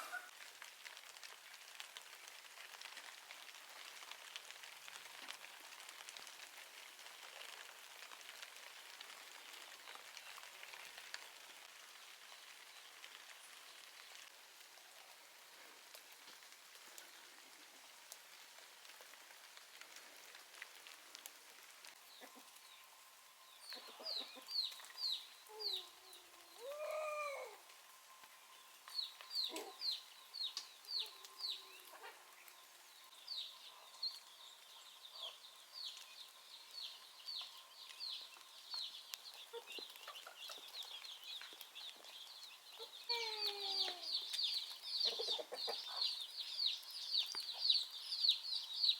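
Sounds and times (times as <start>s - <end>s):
hen clucks: 22.2s - 22.5s, 23.8s - 24.7s, 45.0s - 46.2s
chicks peeping: 23.7s - 27.1s, 29.0s - 32.1s, 36.8s - 48.9s.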